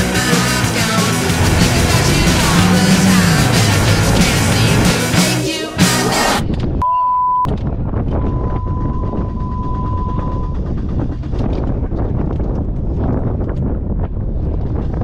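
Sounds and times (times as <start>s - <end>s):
car engine running: 1.2s - 6.1s.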